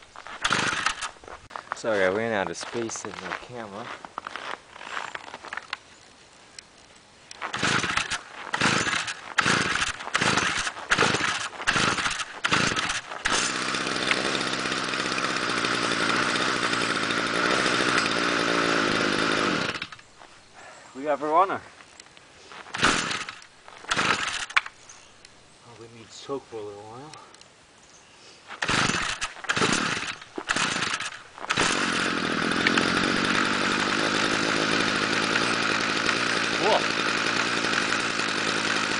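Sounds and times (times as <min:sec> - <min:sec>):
string trimmer engine starting: 0:00.3 - 0:01.2, 0:07.4 - 0:20.1, 0:22.7 - 0:24.7, 0:28.6 - 0:38.9.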